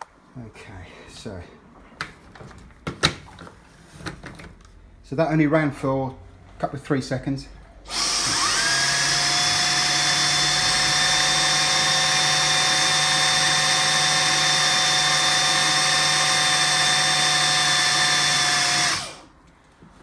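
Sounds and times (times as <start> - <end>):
cordless vacuum running: 7.9 - 19.3.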